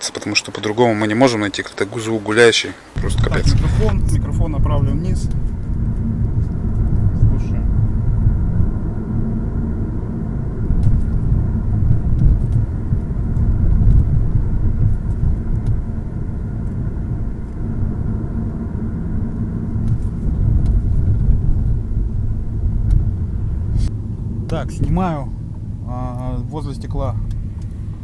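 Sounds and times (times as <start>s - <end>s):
road and engine rumble in car: 2.8s - 28.0s
faint clicks from car body: 10.6s - 17.7s, 19.3s - 25.7s.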